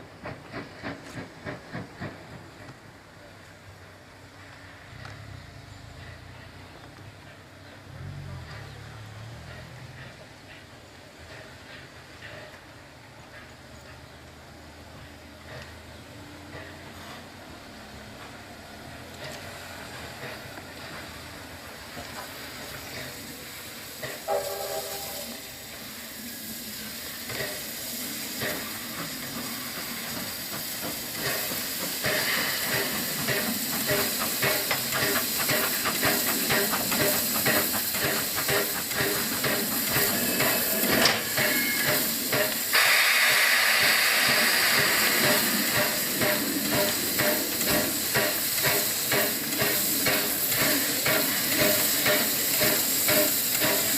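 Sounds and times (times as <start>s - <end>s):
loud hiss of steam: 0.0s - 53.9s
steam locomotive whistle: 24.2s - 25.7s.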